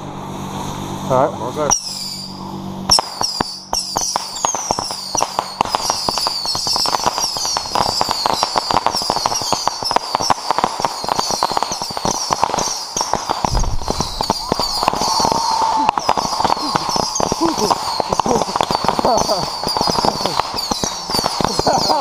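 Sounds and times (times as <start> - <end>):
high firework whistles: 1.6 - 22.0
fireworks popping and crackling: 1.7 - 22.0
low rumble: 13.4 - 21.2.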